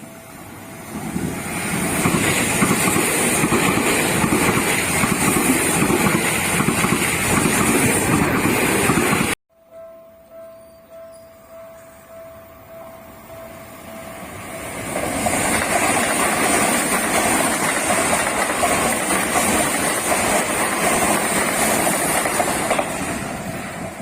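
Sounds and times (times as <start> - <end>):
train rushing past: 0.0 - 9.4, 13.0 - 24.0
crossing warning bell dings: 9.6 - 16.1.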